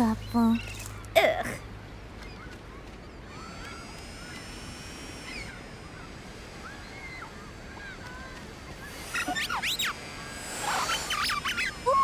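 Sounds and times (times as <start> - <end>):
faint bird cries: 2.2 - 4.5, 5.3 - 10.0
electronic sweeps: 8.6 - 12.0.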